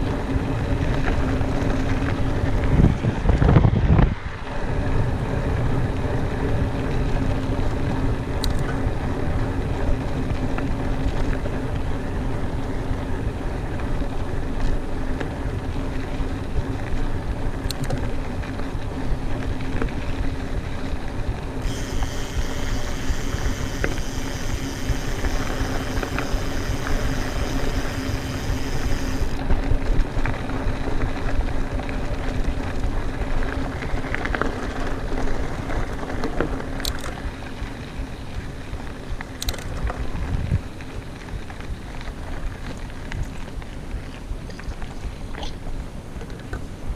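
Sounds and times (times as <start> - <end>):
wind on microphone: 0.0 - 7.1, 37.3 - 40.8
bike tyres rumbling on dirt: 0.0 - 44.4
high buzz: 21.6 - 29.4.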